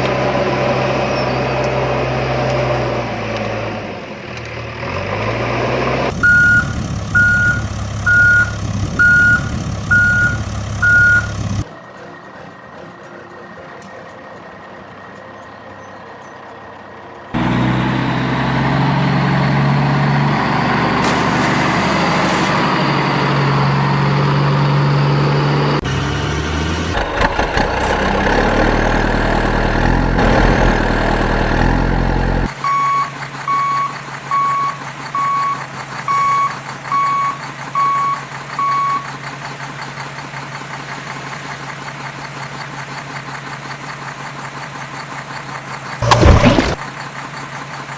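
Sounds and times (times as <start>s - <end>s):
reversing beeps: 6.2s - 12.2s, 32.6s - 39.1s
toy vehicle engine hum: 25.8s - 47.9s.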